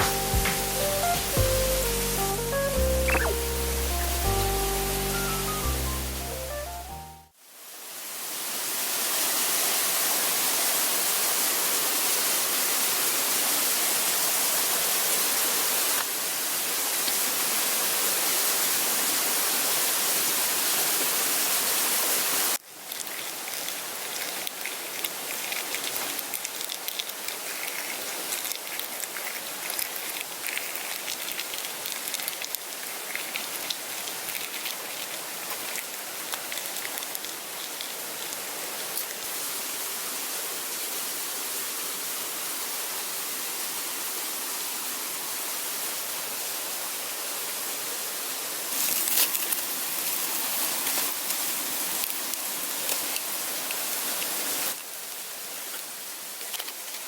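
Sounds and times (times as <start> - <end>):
fire crackles: 22.6 - 39.4
campfire hissing: 48.6 - 56.8.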